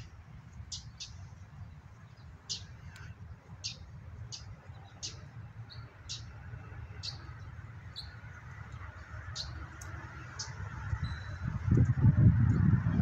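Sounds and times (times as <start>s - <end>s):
steady low rumble: 0.0s - 13.0s
small bird chirping: 0.7s - 1.3s, 2.1s - 6.4s, 7.0s - 8.2s, 9.3s - 9.6s.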